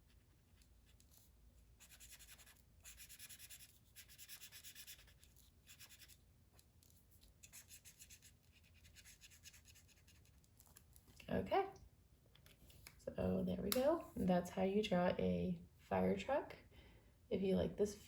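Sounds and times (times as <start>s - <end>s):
drawing tool scratching on paper: 0.0s - 6.2s, 7.4s - 10.4s.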